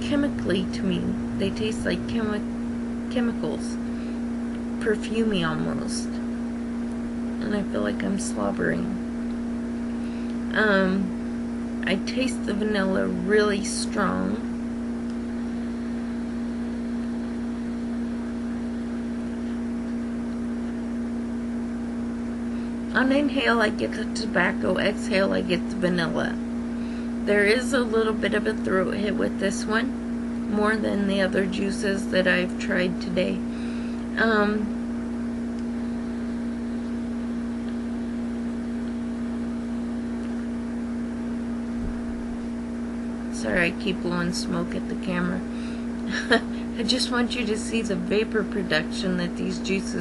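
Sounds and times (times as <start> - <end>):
low rumble: 0.0 - 6.5
steady background hum: 0.0 - 50.0.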